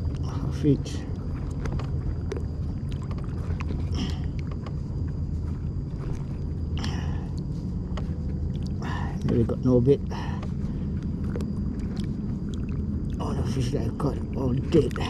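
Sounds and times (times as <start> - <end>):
water moving along kayak hull: 0.0 - 15.0
wind rumble on microphone: 0.0 - 15.0.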